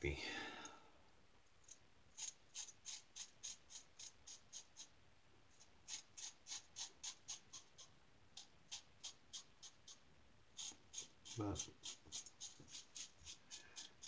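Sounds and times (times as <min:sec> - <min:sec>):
razor scraping stubble: 0:10.6 - 0:14.0.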